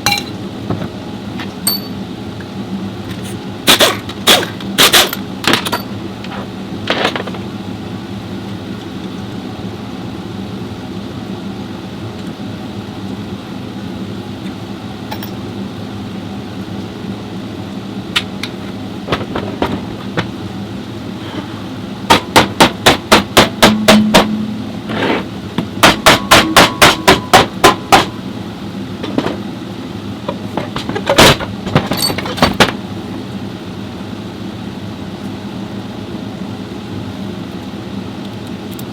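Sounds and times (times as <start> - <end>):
steady hum: 0.0 - 38.9
sharp metal tool knocks: 22.1 - 24.6, 25.8 - 28.2.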